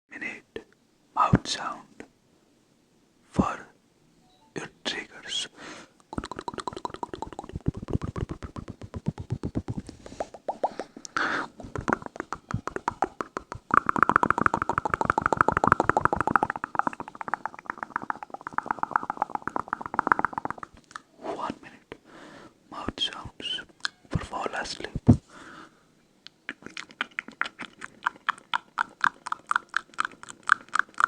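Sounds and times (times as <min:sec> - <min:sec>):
wet mouth clicks and pops: 0:06.0 - 0:21.1, 0:26.3 - 0:31.0.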